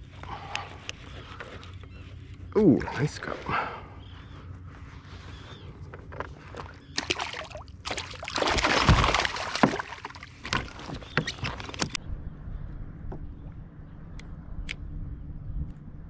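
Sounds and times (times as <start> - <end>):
splashing: 6.6 - 12.0.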